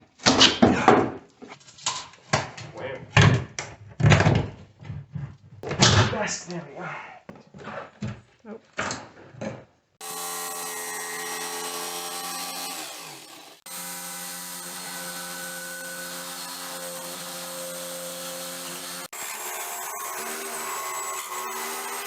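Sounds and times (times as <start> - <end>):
power tool motor whining: 10.0 - 22.0.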